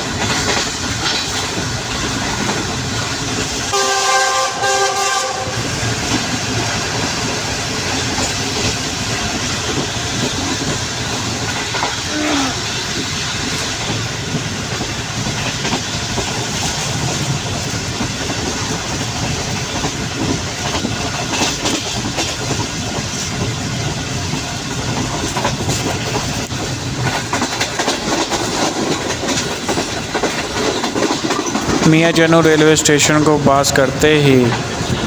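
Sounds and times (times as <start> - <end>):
train rumble: 0.0 - 35.0
train wheels clattering: 0.0 - 35.0.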